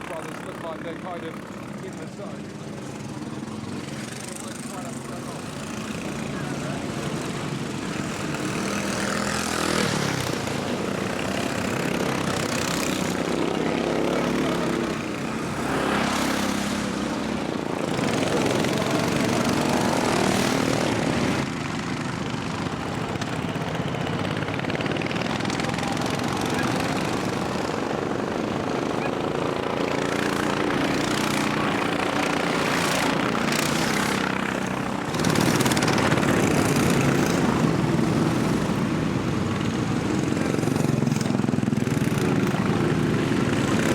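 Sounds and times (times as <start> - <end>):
lawnmower engines passing by: 0.0 - 43.9.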